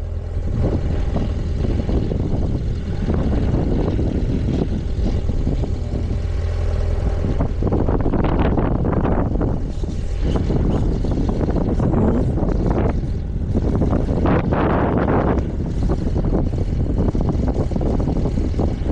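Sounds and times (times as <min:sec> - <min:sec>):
motorcycle engine drone: 0:00.0 - 0:18.9
wind buffeting microphone: 0:00.0 - 0:18.9.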